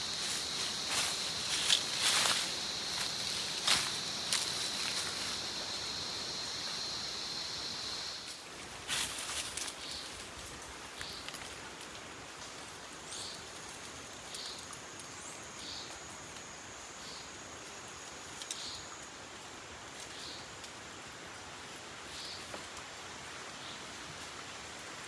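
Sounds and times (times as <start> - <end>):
thin steady high whine: 0.0 - 8.3
even hiss: 0.0 - 9.6.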